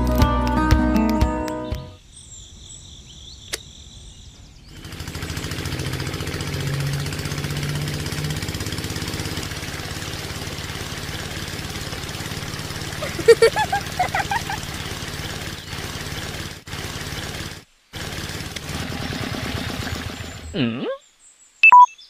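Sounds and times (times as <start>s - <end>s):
sharp click: 3.5s - 3.7s
small engine running: 4.7s - 20.5s.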